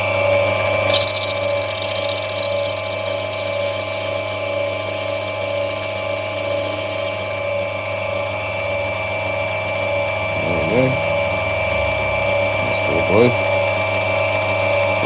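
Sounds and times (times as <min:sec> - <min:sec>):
grinding wheel motor hum: 0:00.9 - 0:07.4
stone grinding hiss: 0:00.9 - 0:07.4.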